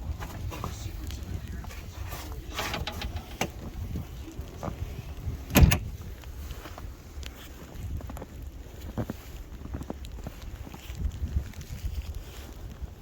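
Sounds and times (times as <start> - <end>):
steady low rumble: 0.0 - 13.0
knocks and clicks: 2.6 - 3.6.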